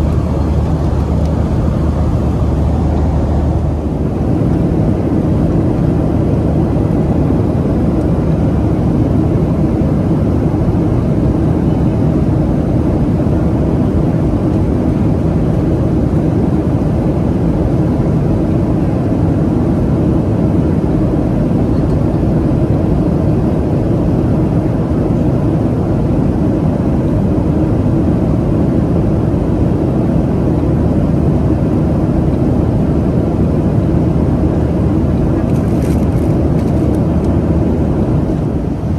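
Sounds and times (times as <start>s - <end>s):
rushing air: 0.0s - 5.4s
jet engines droning: 0.0s - 38.9s.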